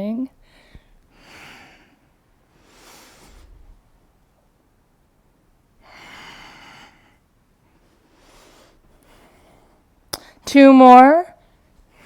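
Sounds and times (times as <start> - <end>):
person breathing: 0.4 - 3.7, 5.8 - 10.4.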